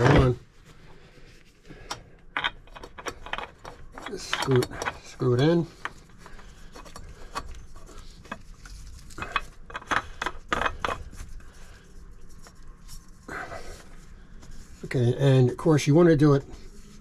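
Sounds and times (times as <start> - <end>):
oil filter clicking and rubbing: 2.3 - 11.6.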